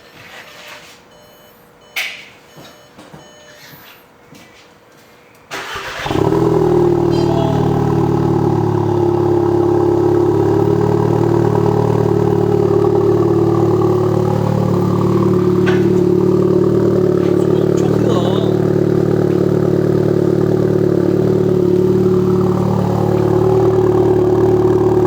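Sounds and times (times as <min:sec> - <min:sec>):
car engine starting and idling: 0:05.5 - 0:25.0.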